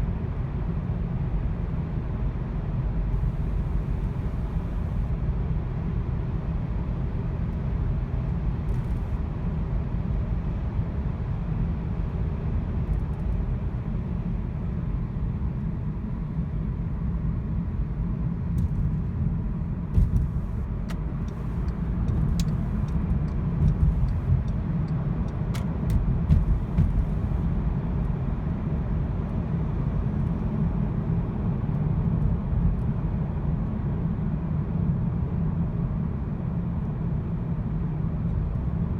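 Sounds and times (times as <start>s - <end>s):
misfiring car engine rumble: 3.1s - 5.2s, 18.5s - 28.0s.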